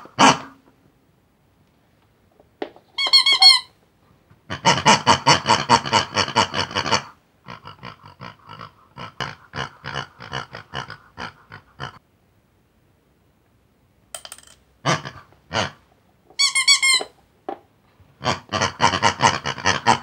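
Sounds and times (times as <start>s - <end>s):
high chirpy squeaks: 2.9s - 3.7s, 16.4s - 17.2s
pig-like grunts: 4.5s - 12.0s, 14.8s - 15.8s, 18.2s - 20.0s.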